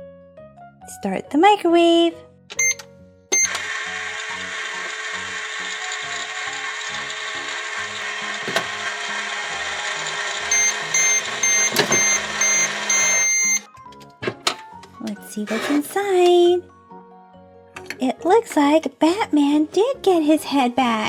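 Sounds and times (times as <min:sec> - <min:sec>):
long beep: 0:02.6 - 0:02.8, 0:03.4 - 0:03.6, 0:10.5 - 0:13.7
short beeps: 0:02.6 - 0:02.8, 0:03.4 - 0:03.6, 0:10.5 - 0:13.7
toy microwave whirring hum: 0:02.6 - 0:13.7, 0:15.4 - 0:16.0.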